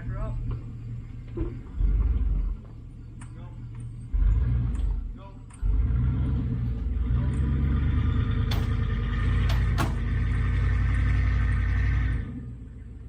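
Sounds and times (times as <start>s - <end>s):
truck engine running: 0.0s - 13.0s
sharp metal clanks: 8.4s - 10.1s.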